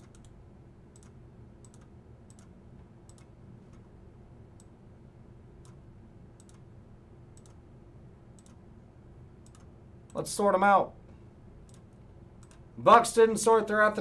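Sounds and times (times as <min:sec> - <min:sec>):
faint computer clicks: 0:00.0 - 0:02.5, 0:03.1 - 0:03.9, 0:07.4 - 0:07.6, 0:08.4 - 0:08.6, 0:09.4 - 0:10.2, 0:11.6 - 0:12.6
low steady hum: 0:00.0 - 0:14.0.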